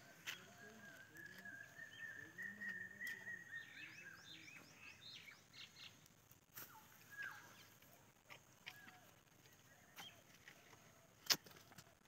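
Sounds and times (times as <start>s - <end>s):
thin wavering bird whistle: 0.6s - 5.3s.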